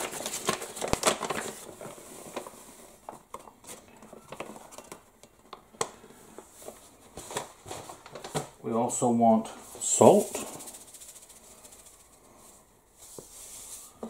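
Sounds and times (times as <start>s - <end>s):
paper bag rustling: 0.0s - 5.1s, 6.5s - 8.6s, 9.7s - 14.0s.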